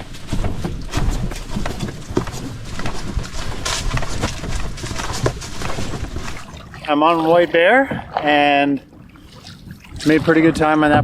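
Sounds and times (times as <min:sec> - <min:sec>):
footsteps on rough trail: 0:00.0 - 0:06.8.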